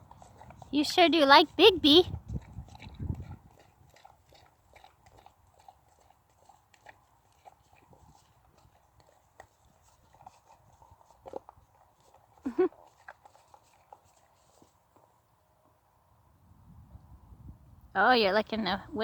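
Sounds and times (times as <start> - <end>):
dog licking and chewing: 0.0 - 1.6, 2.2 - 14.8.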